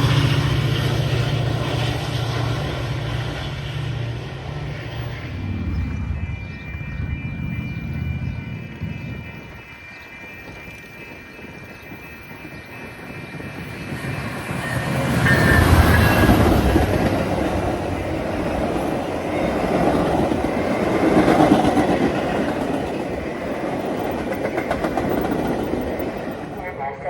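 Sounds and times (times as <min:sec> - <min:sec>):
train rumbling past: 0:00.0 - 0:27.0.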